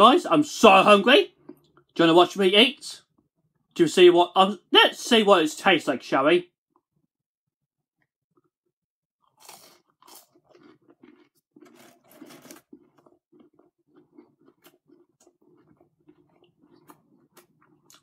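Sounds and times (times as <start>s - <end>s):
crunching and chewing of chicken nugget: 9.2s - 18.0s.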